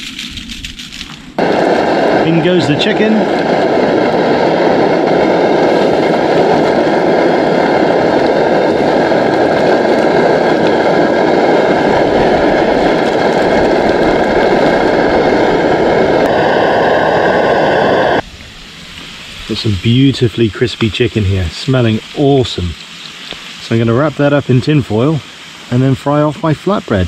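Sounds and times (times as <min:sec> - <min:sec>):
chicken frying in hot oil: 0:18.8 - 0:27.0.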